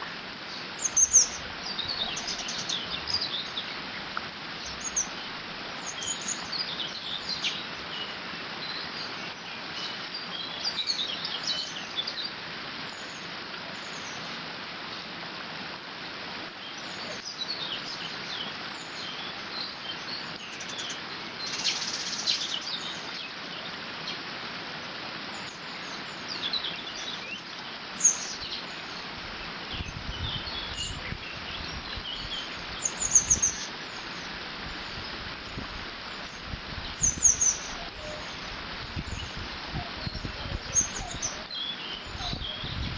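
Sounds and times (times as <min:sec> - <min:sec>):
small birds chirping: 0:00.0 - 0:15.1, 0:16.5 - 0:24.2, 0:24.8 - 0:42.9
low rumble of wind: 0:00.0 - 0:20.4, 0:22.5 - 0:42.9
water running over a dam: 0:00.0 - 0:42.9.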